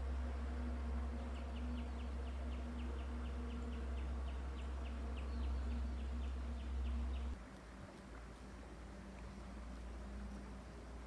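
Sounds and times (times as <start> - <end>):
low hum: 0.0 - 11.0
small bird chirping: 1.1 - 7.4.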